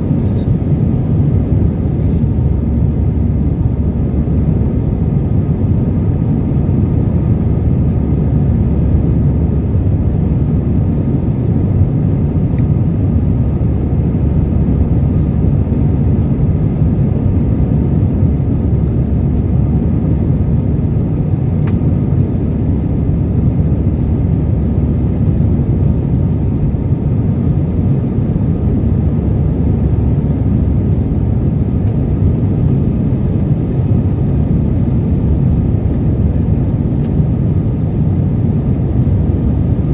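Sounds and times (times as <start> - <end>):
faint steady whine: 0.0 - 16.4
airplane engine rumble in cabin: 0.0 - 39.9.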